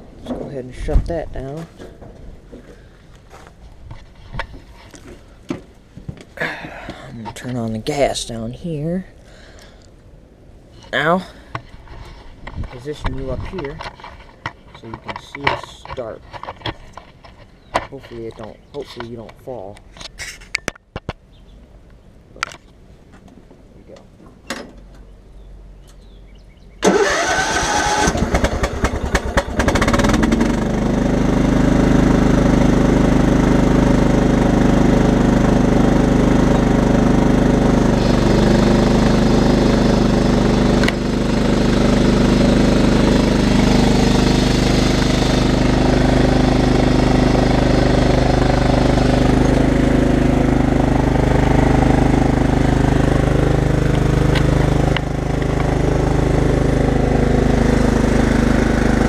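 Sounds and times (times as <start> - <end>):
mower engine cranking and starting: 12.7 - 17.0, 26.8 - 59.0.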